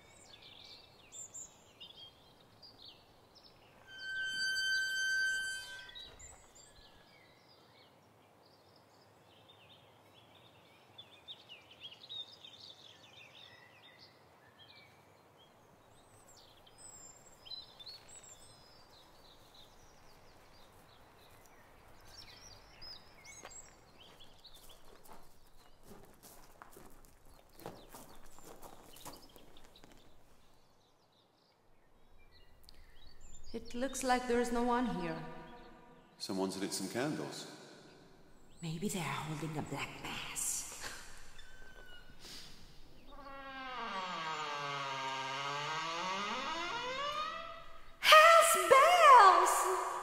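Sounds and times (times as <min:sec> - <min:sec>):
faint outdoor ambience: 0:00.0 - 0:50.0
birds chirping: 0:27.4 - 0:50.0.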